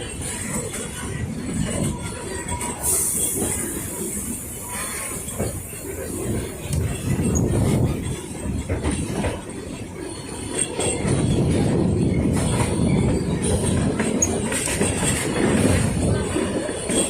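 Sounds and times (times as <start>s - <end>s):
train wheels rumbling: 0.0s - 17.0s
faint high wheel squeal: 2.4s - 7.5s.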